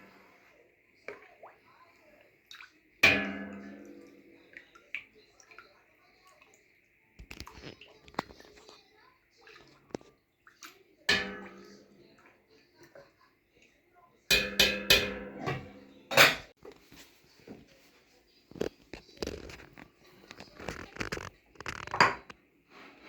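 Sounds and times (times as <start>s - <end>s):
faint liquid sloshing: 0.0s - 23.0s
cookware clattering: 3.0s - 4.4s, 11.1s - 12.1s, 14.3s - 16.5s, 21.7s - 22.4s
metal pot knocked and ringing: 3.0s - 4.4s, 11.1s - 12.0s, 14.3s - 16.5s.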